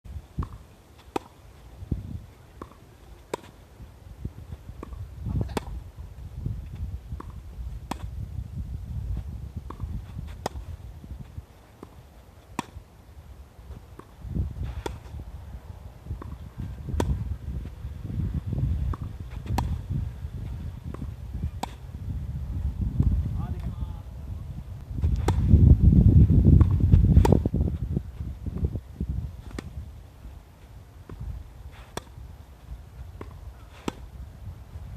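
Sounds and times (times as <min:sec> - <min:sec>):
tennis balls being hit: 0:00.4 - 0:01.5, 0:02.5 - 0:03.7, 0:04.5 - 0:05.9, 0:07.1 - 0:08.2, 0:09.6 - 0:10.7, 0:11.4 - 0:12.9, 0:13.7 - 0:15.2, 0:16.0 - 0:17.4, 0:18.8 - 0:21.9, 0:25.0 - 0:25.6, 0:26.5 - 0:27.6, 0:29.4 - 0:29.8, 0:31.0 - 0:32.3, 0:33.0 - 0:34.2
wind buffeting microphone: 0:01.6 - 0:02.6, 0:03.7 - 0:34.9.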